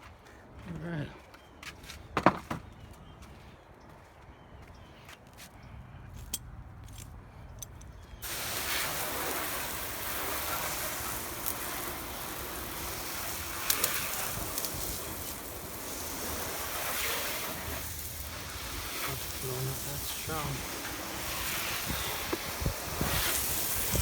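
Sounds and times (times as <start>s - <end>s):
garden hose spraying water: 8.2s - 24.0s.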